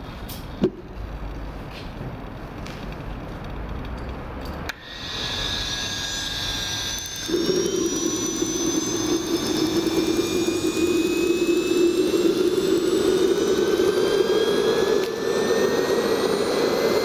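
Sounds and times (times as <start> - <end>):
low steady engine roar: 0.0 - 17.0
turbojet engine whine rising: 4.7 - 17.0.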